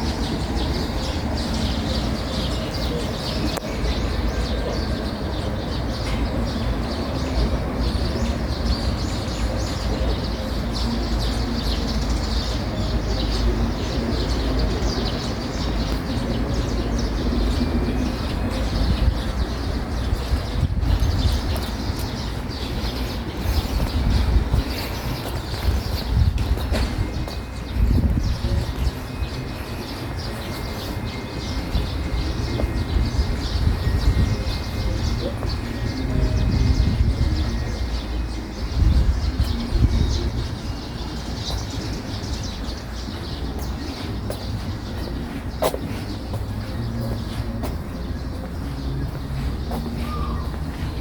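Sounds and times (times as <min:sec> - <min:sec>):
small birds chirping: 0:00.0 - 0:51.0
steady low rumble: 0:13.5 - 0:29.8.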